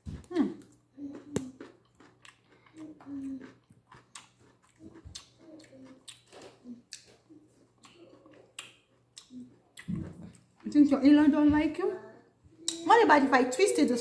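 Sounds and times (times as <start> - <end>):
chewing raw vegetables: 0.0 - 10.7.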